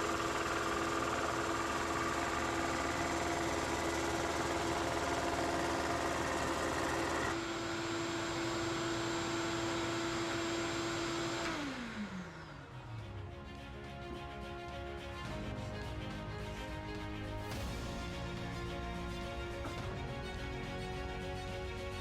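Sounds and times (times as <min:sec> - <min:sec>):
motor winding down: 0:00.0 - 0:13.0
shop vacuum running: 0:00.0 - 0:13.0
drum sander motor whine: 0:00.0 - 0:14.0.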